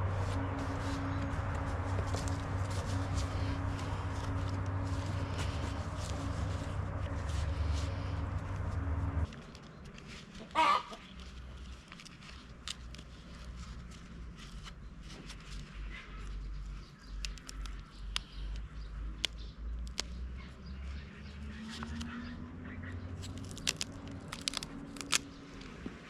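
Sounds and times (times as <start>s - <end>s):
steady low hum: 0.0s - 9.8s
chicken squawk: 10.4s - 11.0s.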